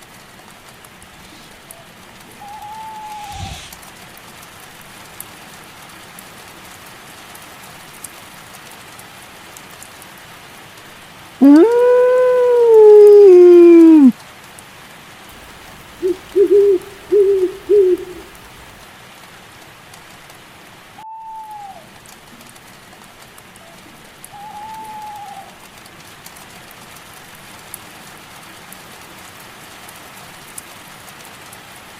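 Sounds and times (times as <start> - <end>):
steady rain: 0.0 - 21.0, 21.8 - 31.9
owl hooting: 1.2 - 3.8, 15.4 - 18.8, 24.3 - 25.6
faint calls falling in pitch: 2.4 - 3.8, 15.4 - 18.8.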